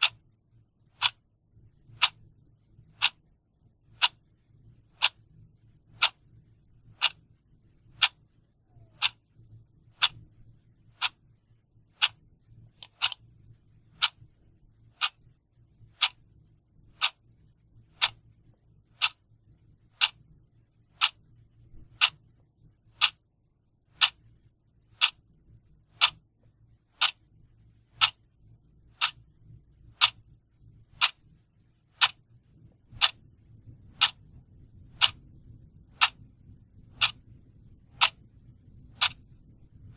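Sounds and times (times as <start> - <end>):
mechanical clock ticking: 0.0 - 0.2, 0.9 - 1.2, 1.8 - 2.2, 2.9 - 3.2, 3.9 - 4.2, 4.9 - 5.2, 5.9 - 6.2, 6.8 - 7.2, 7.9 - 8.2, 8.8 - 9.2, 9.9 - 10.3, 10.9 - 11.2, 11.9 - 13.2, 13.9 - 14.3, 14.9 - 15.2, 15.8 - 16.2, 16.9 - 19.2, 20.0 - 20.3, 20.9 - 22.3, 22.9 - 23.2, 23.9 - 24.2, 24.9 - 26.3, 26.9 - 27.3, 27.9 - 28.3, 28.9 - 30.3, 30.9 - 31.4, 32.0 - 39.9.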